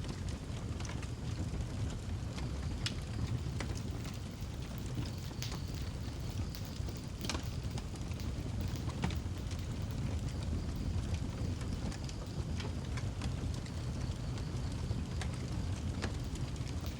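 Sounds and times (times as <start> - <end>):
fire crackling: 0.0 - 16.9
wood fire rumbling: 0.0 - 16.9
fire popping: 0.1 - 16.9.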